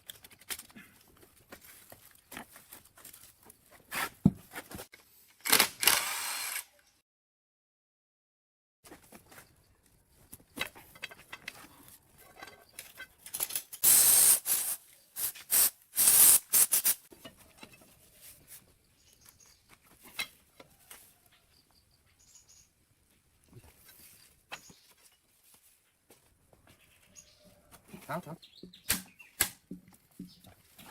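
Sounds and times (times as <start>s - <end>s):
hissing spray bursts: 13.8s - 17.1s.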